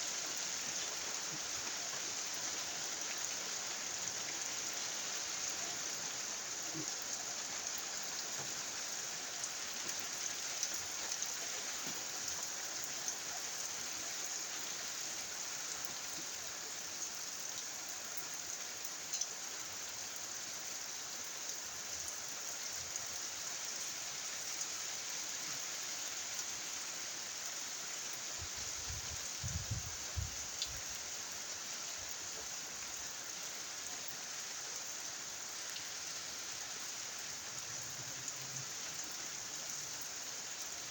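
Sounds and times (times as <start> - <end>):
steady rain hiss: 0.0 - 40.9
rain drop ticks: 19.1 - 19.3.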